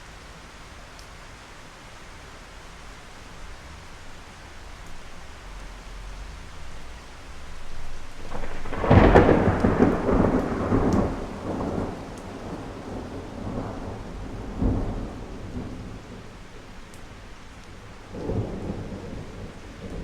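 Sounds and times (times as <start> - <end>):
rain falling: 0.0 - 20.0
thunder cracks and rolls: 4.9 - 20.0.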